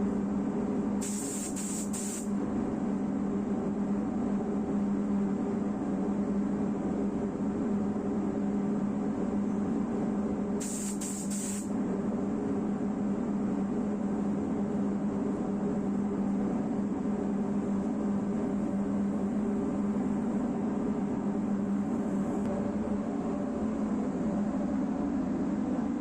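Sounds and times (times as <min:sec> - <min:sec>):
spray gun air hissing: 0:01.0 - 0:02.3, 0:10.6 - 0:11.7
machine hum: 0:16.6 - 0:26.0.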